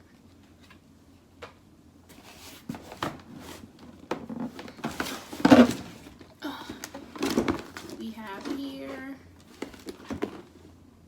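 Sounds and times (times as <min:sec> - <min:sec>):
packaging rustling: 0:02.2 - 0:10.6.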